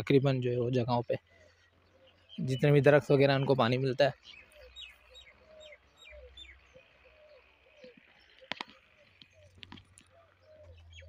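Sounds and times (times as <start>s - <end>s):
faint low bird calls: 0.0s - 11.0s
high bird chirps: 0.0s - 11.0s
footsteps on dirt path: 7.8s - 11.0s.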